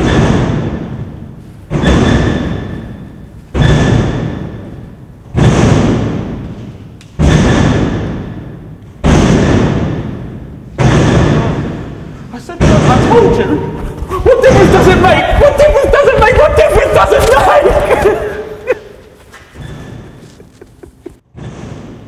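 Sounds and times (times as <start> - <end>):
heavy thuds with ringing echo: 0.0 - 16.4.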